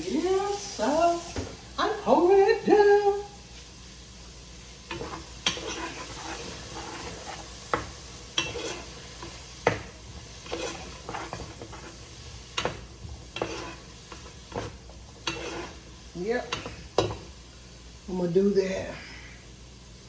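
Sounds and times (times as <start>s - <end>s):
food sizzling: 0.0s - 20.0s
utensil scraping a pan: 4.8s - 17.4s
utensil knocking on pan: 7.7s - 11.9s, 12.5s - 15.8s.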